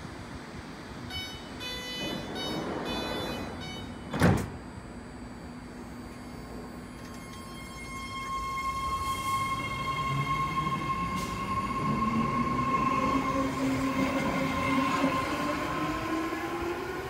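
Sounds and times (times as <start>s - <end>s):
train mechanical noise: 0.0s - 17.0s
short electronic beeps: 1.1s - 4.1s.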